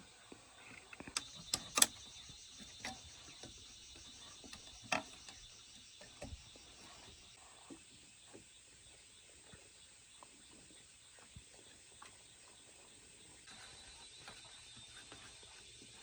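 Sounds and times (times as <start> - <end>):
sharp clicks and knocks: 1.0 - 6.6.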